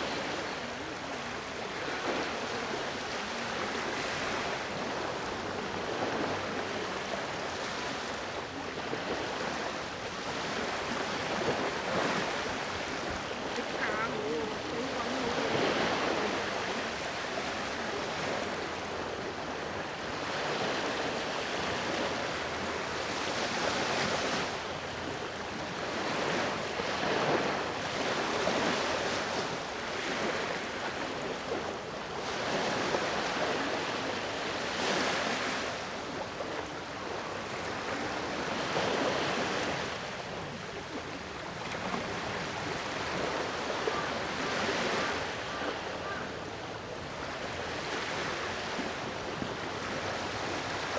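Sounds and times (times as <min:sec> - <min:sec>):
ocean waves breaking: 0:00.0 - 0:24.4.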